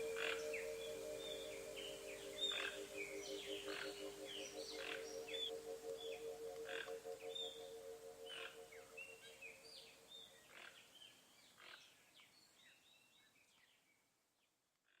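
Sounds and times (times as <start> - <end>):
low held tone: 0.0 - 10.3
birds chirping and whistling: 0.0 - 11.1.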